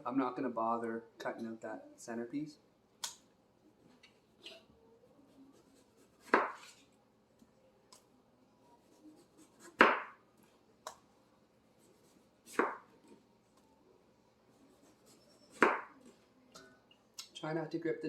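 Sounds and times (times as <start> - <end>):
knife chopping on cutting board: 6.2 - 6.8, 9.4 - 10.2, 12.4 - 12.9, 15.5 - 15.9.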